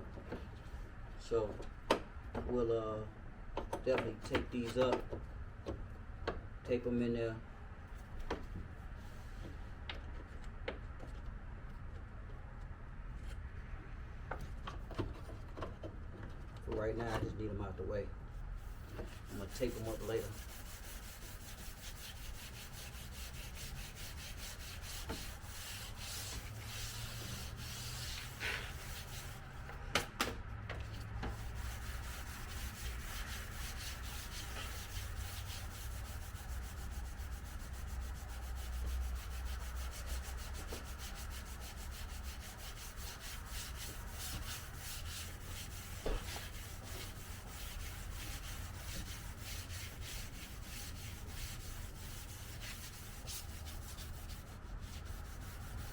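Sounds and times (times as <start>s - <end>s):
sandpaper rubbing on car paint: 18.6s - 29.8s, 31.2s - 55.9s.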